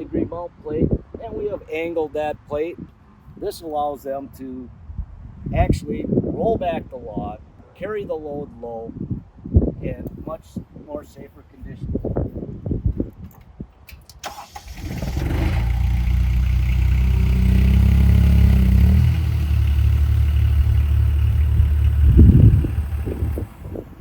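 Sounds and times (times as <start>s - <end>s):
skid steer engine running: 14.6s - 24.0s.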